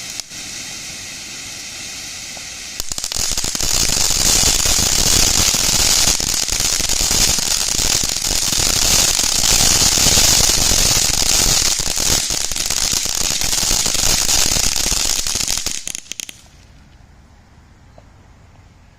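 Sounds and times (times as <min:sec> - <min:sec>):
firework pops: 0:00.0 - 0:00.6, 0:02.3 - 0:07.3, 0:07.9 - 0:16.6
firework fountain hissing sparks: 0:00.0 - 0:16.6.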